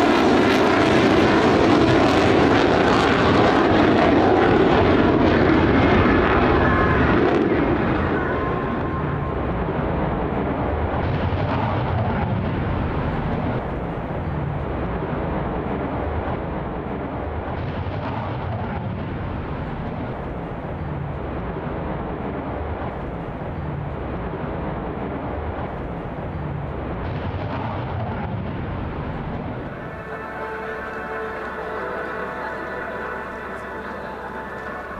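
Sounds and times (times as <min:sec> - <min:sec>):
jet engines in flight: 0:00.0 - 0:34.9.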